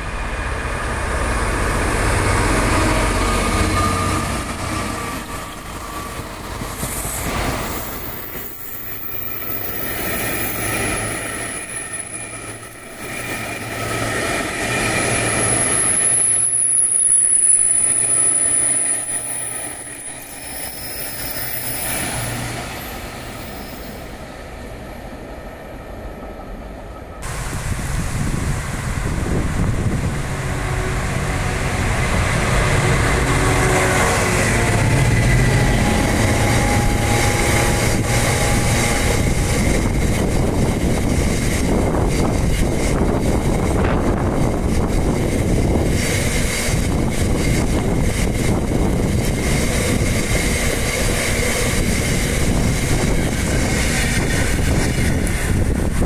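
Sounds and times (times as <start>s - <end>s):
diesel locomotive engine: 0.0s - 56.0s
wagons rumbling and clattering on rails: 27.2s - 56.0s.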